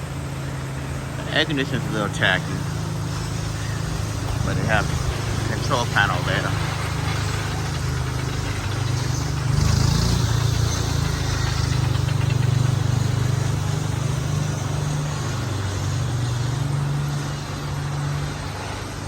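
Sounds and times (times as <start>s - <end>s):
engine humming steadily: 0.0s - 19.0s
hiss: 0.1s - 19.0s.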